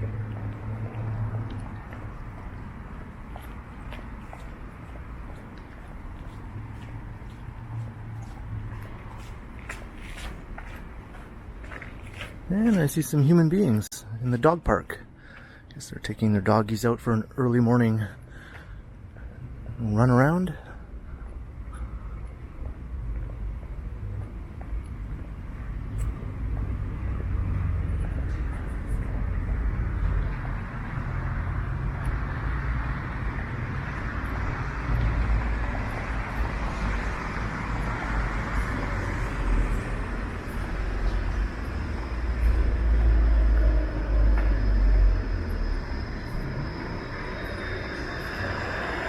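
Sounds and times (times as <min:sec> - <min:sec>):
cars passing with tyre noise: 0:00.0 - 0:49.0
faint steady high tone: 0:42.2 - 0:49.0.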